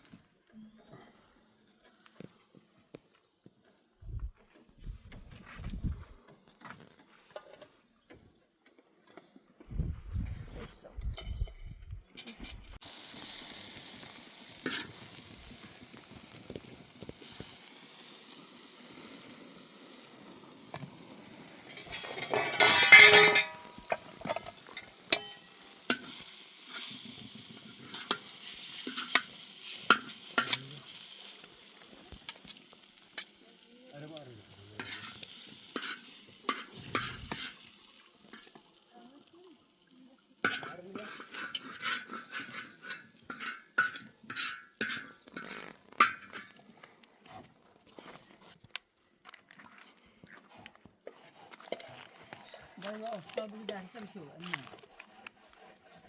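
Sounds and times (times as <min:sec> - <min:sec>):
food sizzling in a pan: 0:12.8 - 0:48.5
utensil scraping a pan: 0:21.5 - 0:31.4, 0:34.6 - 0:38.8, 0:40.4 - 0:48.4, 0:50.4 - 0:56.0.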